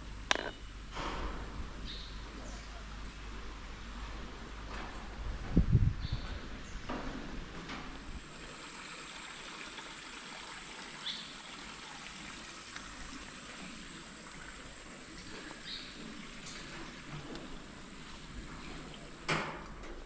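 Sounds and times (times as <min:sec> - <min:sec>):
soft hiss: 0:08.0 - 0:19.9
high insect drone: 0:08.2 - 0:19.7.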